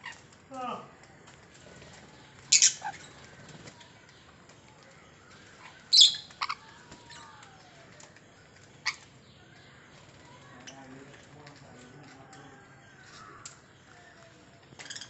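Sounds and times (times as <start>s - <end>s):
birds giving sharp high calls: 2.4s - 3.9s, 5.5s - 8.0s, 8.7s - 9.4s.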